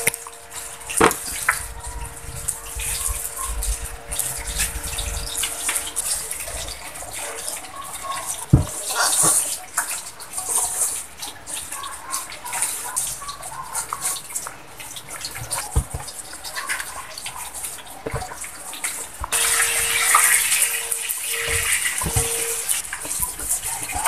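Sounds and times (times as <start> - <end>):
steady hiss: 0.0 - 24.0
faint flat tone: 19.4 - 24.0.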